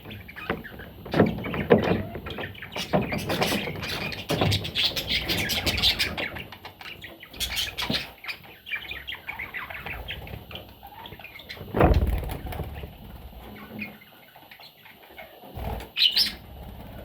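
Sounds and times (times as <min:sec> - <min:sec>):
budgerigar chirping and squawking: 0:01.5 - 0:11.7, 0:16.0 - 0:16.4.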